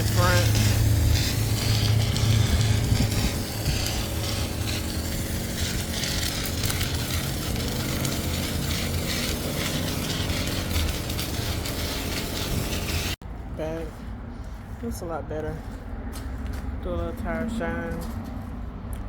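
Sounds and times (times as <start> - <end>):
water spray hissing on car: 0.0 - 13.2
low hum of wash equipment: 0.0 - 19.0.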